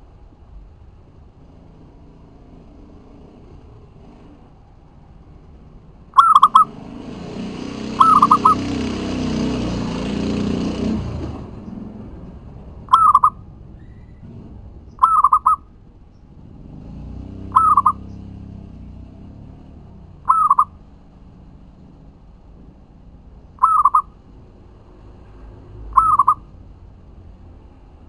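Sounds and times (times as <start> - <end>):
dove cooing: 6.2 - 6.8, 7.7 - 9.2, 12.9 - 13.4, 15.0 - 15.6, 17.5 - 18.1, 20.2 - 20.8, 23.6 - 24.1, 25.9 - 26.5.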